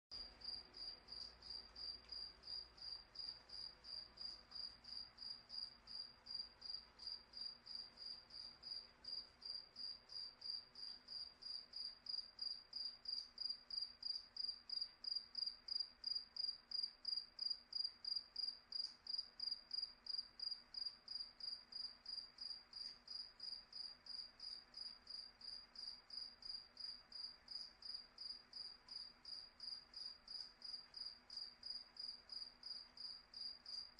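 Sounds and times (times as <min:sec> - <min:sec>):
cricket chirping: 0:00.2 - 0:33.9.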